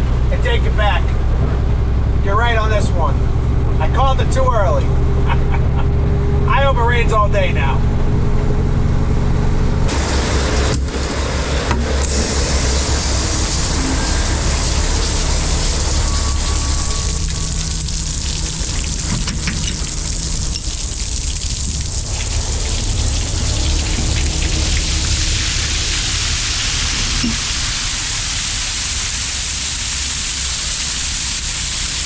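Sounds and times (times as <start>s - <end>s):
diesel engine running: 0.0s - 32.0s
rushing water: 9.9s - 32.0s.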